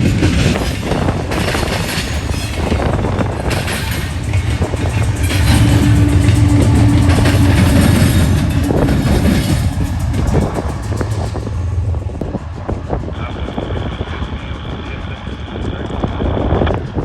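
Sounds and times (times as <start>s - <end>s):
freight train rumble: 0.0s - 17.0s.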